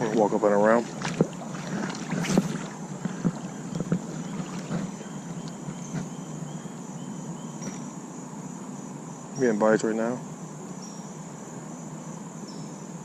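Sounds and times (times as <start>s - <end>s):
creek water rushing: 0.0s - 6.1s
footsteps on a bank: 0.0s - 6.2s
insect chirping: 0.0s - 13.0s.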